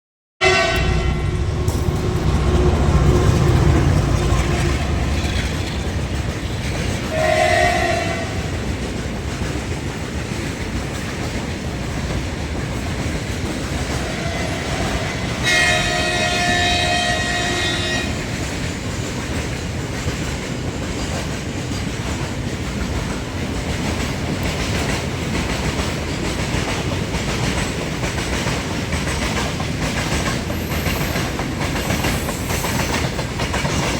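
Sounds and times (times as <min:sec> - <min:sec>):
train horn: 0:00.4 - 0:01.6, 0:02.4 - 0:05.6, 0:07.0 - 0:08.7, 0:13.9 - 0:18.5
freight train rumbling: 0:00.4 - 0:33.9
train wheels clacking on rail joints: 0:00.7 - 0:33.9.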